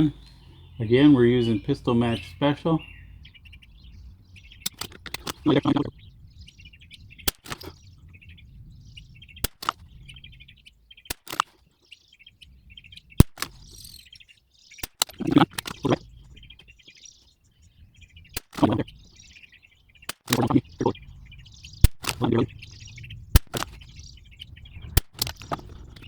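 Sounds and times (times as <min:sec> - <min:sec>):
birds chirping: 0:00.0 - 0:26.0
rifle shots cracking: 0:13.2 - 0:14.0, 0:23.4 - 0:24.0.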